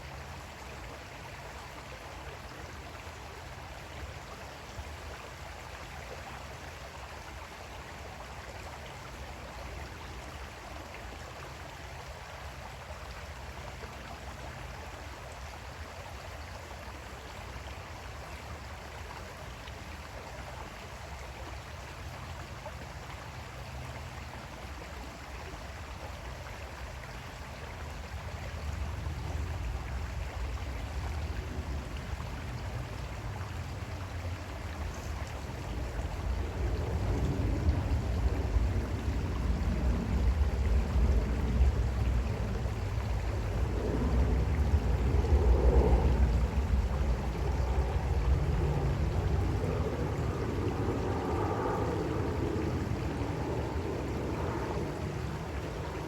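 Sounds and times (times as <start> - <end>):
creek water flowing: 0.0 - 56.0
low rumble: 28.6 - 55.5.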